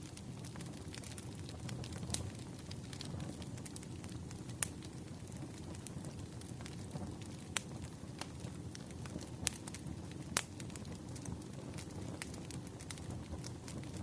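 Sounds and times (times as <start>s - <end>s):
low rumble of flames: 0.0s - 14.0s
wood crackling and popping: 0.0s - 14.0s.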